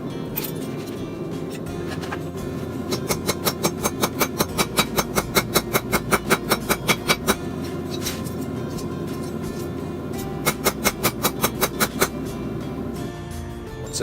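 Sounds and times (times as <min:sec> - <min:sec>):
hammer blows on anvil: 0:01.9 - 0:12.9.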